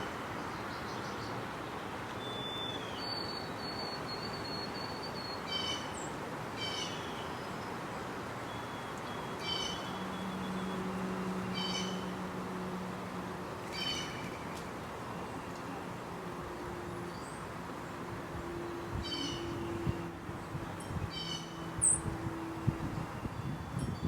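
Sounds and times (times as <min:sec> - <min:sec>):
steady outdoor hiss: 0:00.0 - 0:24.0
high ringing animal call: 0:19.0 - 0:19.7, 0:20.8 - 0:22.0.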